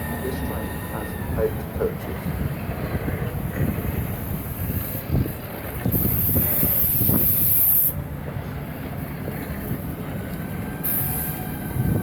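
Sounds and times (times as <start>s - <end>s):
train rumbling into station: 0.0s - 12.0s.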